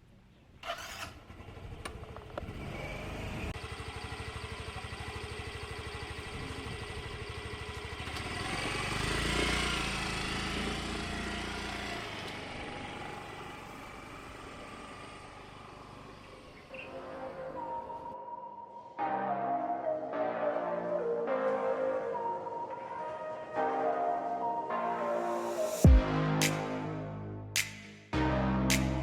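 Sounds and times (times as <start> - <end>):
motorcycle engine: 0.6 - 16.8.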